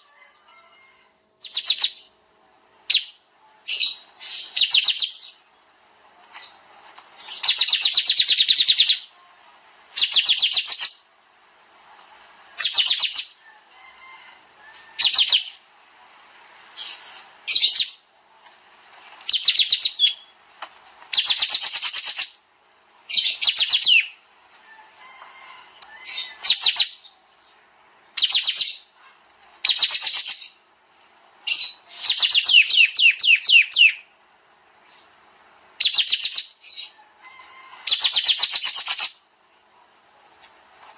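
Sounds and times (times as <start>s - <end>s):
bird singing fast trilled bursts: 1.0s - 2.2s, 2.9s - 5.5s, 7.2s - 9.1s, 9.9s - 11.1s, 12.6s - 13.4s, 19.3s - 20.3s, 21.1s - 22.4s, 23.1s - 24.2s, 26.0s - 27.1s, 28.1s - 28.9s, 29.6s - 30.6s, 31.5s - 34.1s, 35.8s - 36.9s, 37.8s - 39.3s.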